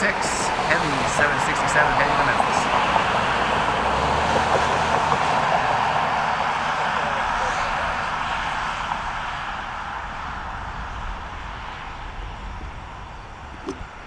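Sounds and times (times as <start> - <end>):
jet engines at takeoff: 0.0 - 14.0.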